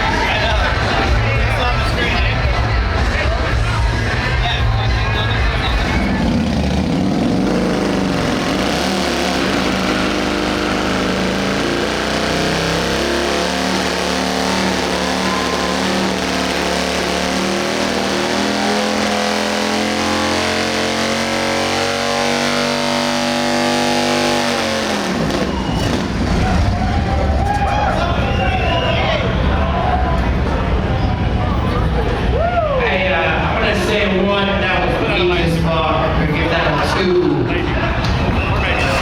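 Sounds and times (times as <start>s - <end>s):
motorcycle engine at high revs: 5.5s - 26.8s.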